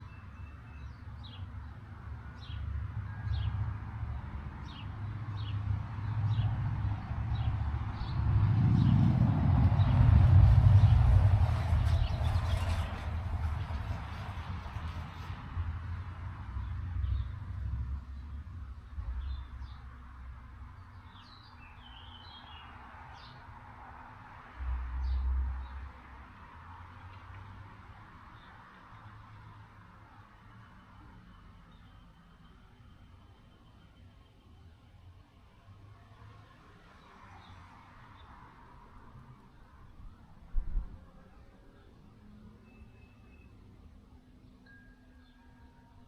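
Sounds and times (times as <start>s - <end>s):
steady outdoor hiss: 0.0s - 46.0s
wind buffeting microphone: 6.2s - 18.2s
bird chirping: 42.6s - 43.6s.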